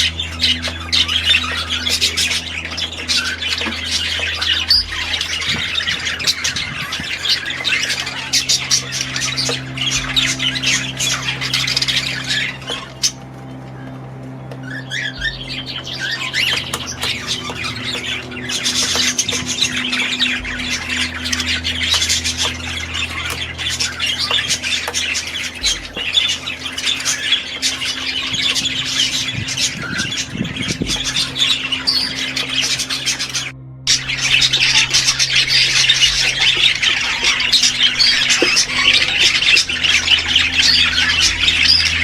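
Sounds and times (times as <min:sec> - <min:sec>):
birds squawking and chattering: 0:00.0 - 0:42.0
steady low hum: 0:00.0 - 0:42.0.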